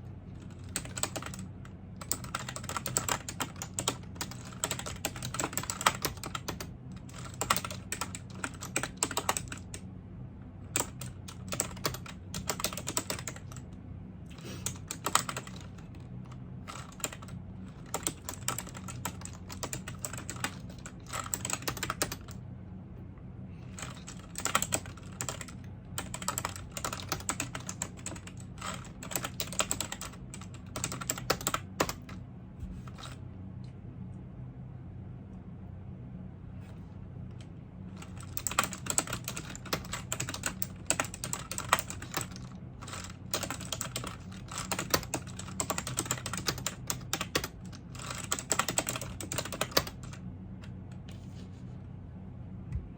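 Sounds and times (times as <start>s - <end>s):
steady low hum: 0.0s - 52.9s
typing on computer keyboard: 0.4s - 9.8s, 10.7s - 13.6s, 14.3s - 15.9s, 16.7s - 22.4s, 23.8s - 32.2s, 38.0s - 50.2s.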